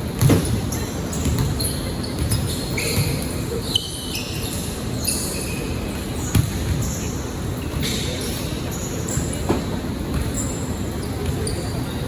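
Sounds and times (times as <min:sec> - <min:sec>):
sneakers squeaking on floor: 0:00.1 - 0:12.0
basketball bouncing: 0:00.2 - 0:01.6, 0:06.3 - 0:06.8.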